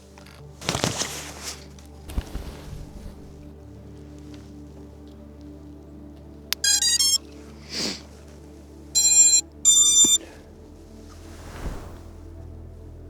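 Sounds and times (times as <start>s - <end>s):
background music: 0.0s - 13.0s
electronic beep tones: 6.6s - 7.2s, 9.0s - 10.2s.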